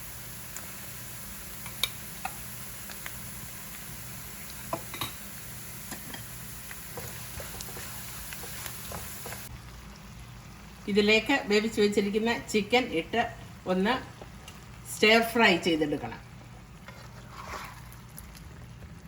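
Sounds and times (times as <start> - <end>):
food sizzling in oil: 0.0 - 13.0
stirring clicks: 5.9 - 9.5.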